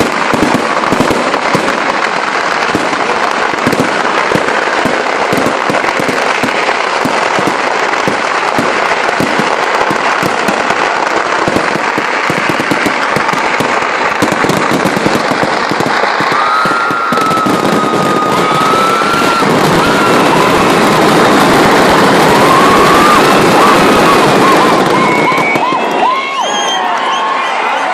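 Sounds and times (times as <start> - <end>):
firecrackers crackling: 0.0 - 27.9
high whistle-like tone: 25.0 - 27.7.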